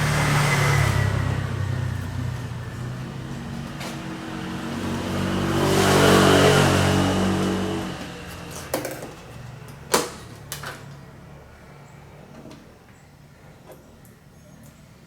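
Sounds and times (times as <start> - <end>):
passing vehicle engine: 0.0 - 9.8.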